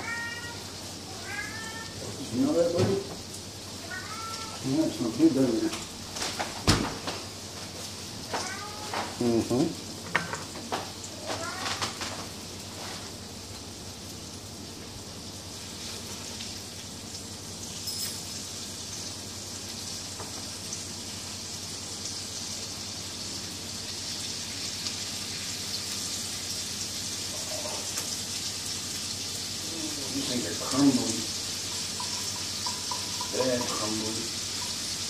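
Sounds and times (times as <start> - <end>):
patties sizzling in a skillet: 0.0 - 35.0
faint clink: 17.8 - 18.3.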